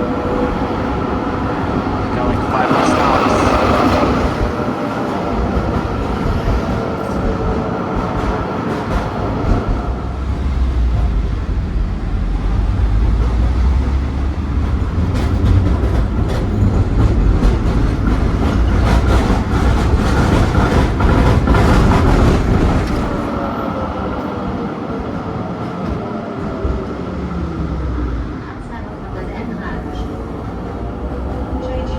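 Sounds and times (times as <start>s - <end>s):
tram rumbling on rails: 0.0s - 31.9s
tram whine: 0.0s - 31.9s.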